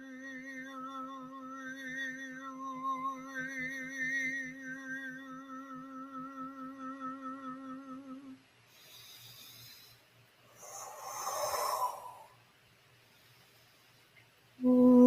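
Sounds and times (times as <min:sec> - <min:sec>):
person humming a note: 0:14.6 - 0:15.0.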